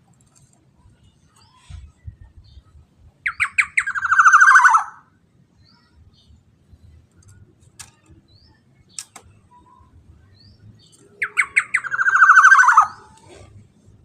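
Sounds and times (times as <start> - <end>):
faint clicks: 8.9 - 9.4
oriole rasping call: 11.2 - 13.5.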